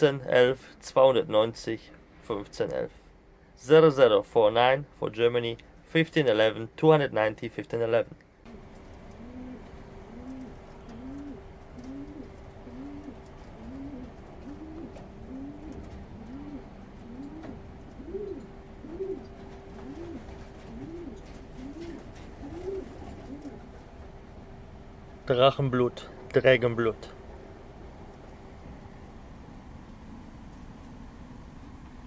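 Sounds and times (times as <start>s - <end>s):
faint steady hum: 0.0s - 32.0s
pigeons cooing: 8.5s - 24.0s.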